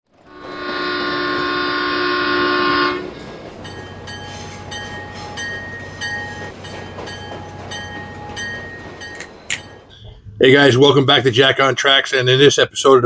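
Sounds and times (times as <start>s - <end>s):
train horn: 0.1s - 9.6s
repeating ringing: 0.5s - 10.1s.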